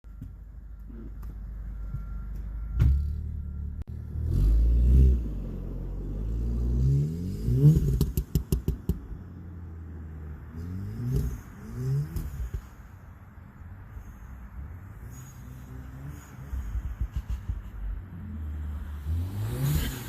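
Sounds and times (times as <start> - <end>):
car engine accelerating: 0.7 - 12.9, 14.0 - 20.0
sharp exhaust pops: 7.5 - 9.3, 11.0 - 12.8.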